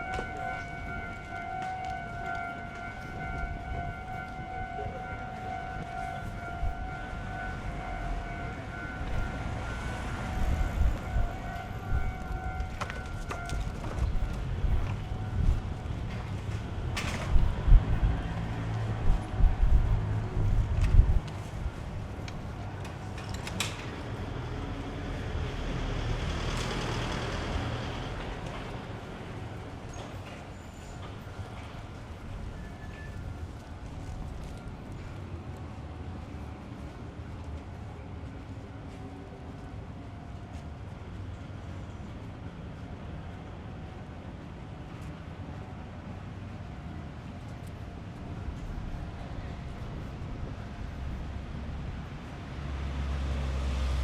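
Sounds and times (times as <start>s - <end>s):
wind buffeting microphone: 0.0s - 23.2s
wind rumble on microphone: 0.0s - 54.0s
vehicle passing by: 52.4s - 54.0s.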